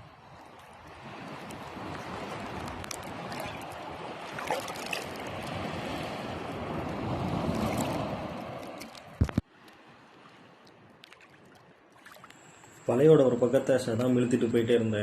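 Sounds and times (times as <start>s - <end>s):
sea water sloshing: 0.4s - 12.9s
sharp water splashes: 1.3s - 9.4s, 10.6s - 12.6s.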